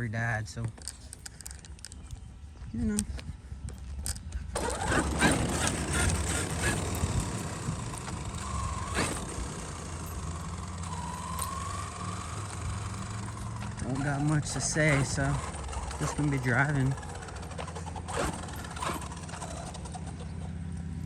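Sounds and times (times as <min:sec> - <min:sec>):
tyres crunching gravel: 0:00.0 - 0:21.0
electric motor whine: 0:04.5 - 0:21.0.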